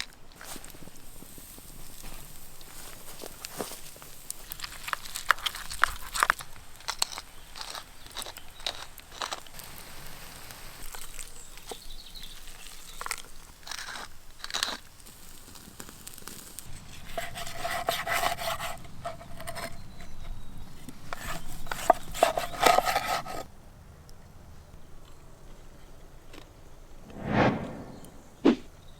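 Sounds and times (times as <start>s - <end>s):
wood fire crackling: 9.0s - 17.9s.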